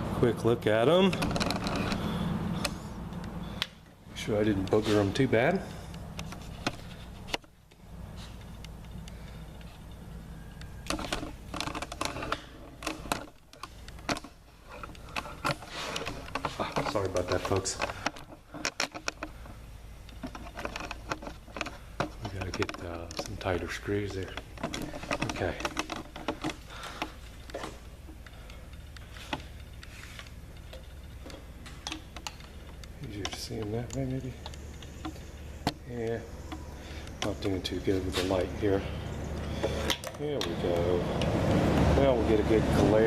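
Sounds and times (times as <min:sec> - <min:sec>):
low steady hum: 0:00.0 - 0:43.0
light clicks and knocks: 0:00.8 - 0:43.0
camera mount clicking and clattering: 0:01.1 - 0:02.0.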